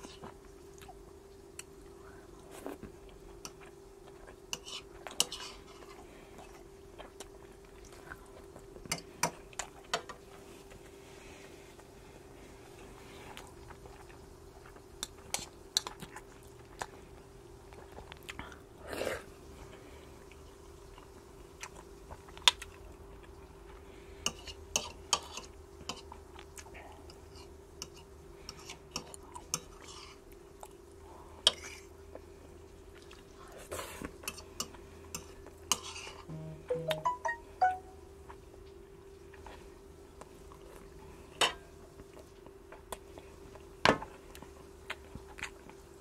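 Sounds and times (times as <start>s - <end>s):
faint steady hum: 0.0s - 46.0s
person chewing food: 12.8s - 19.2s, 20.2s - 33.4s, 42.0s - 45.8s.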